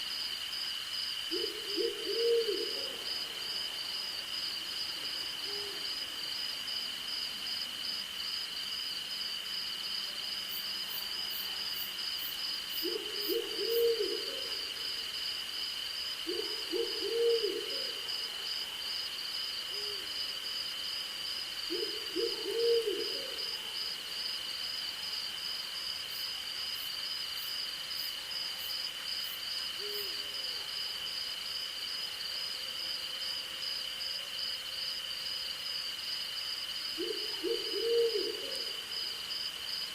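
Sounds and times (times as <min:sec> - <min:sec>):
owl hooting: 0:01.3 - 0:03.0, 0:12.8 - 0:14.7, 0:16.3 - 0:18.1, 0:21.7 - 0:23.5, 0:37.0 - 0:38.8.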